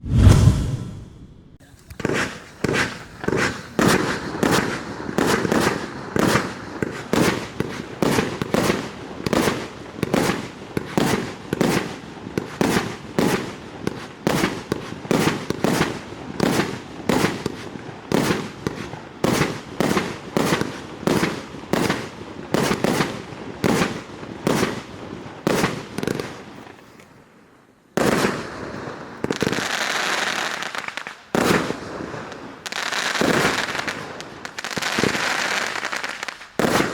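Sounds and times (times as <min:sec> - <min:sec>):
steady rushing noise: 0:00.0 - 0:01.6
firework shots: 0:00.0 - 0:09.6, 0:33.1 - 0:36.9.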